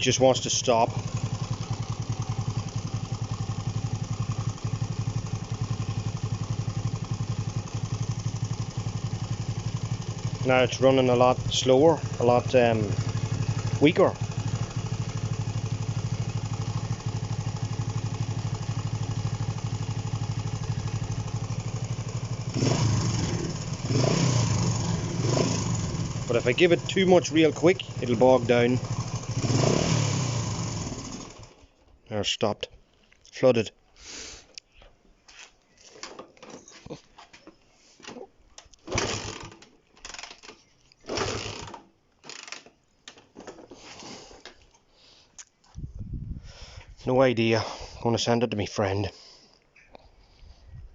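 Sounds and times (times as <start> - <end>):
motorcycle engine idling: 0.0 - 31.6.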